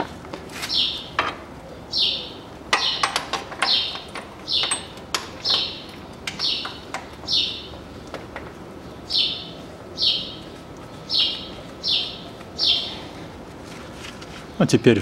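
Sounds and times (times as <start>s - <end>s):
bird chirping: 0.7s - 8.2s, 8.8s - 13.2s
metallic clicks and knocks: 2.7s - 7.4s.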